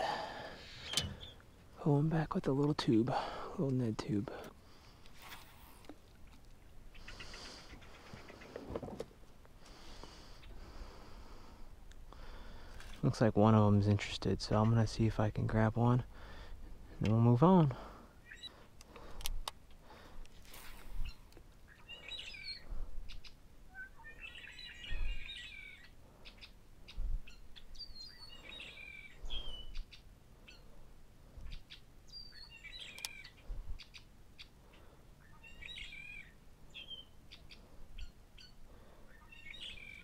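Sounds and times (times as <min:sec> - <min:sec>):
bird chirping: 0:00.4 - 0:01.6, 0:18.2 - 0:18.6, 0:20.7 - 0:30.8, 0:31.4 - 0:40.0.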